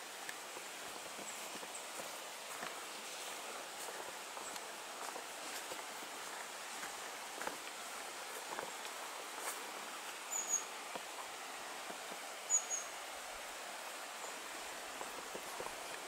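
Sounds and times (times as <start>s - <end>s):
outdoor hiss: 0.0s - 16.0s
high bird chirps: 10.3s - 10.7s, 12.5s - 12.9s.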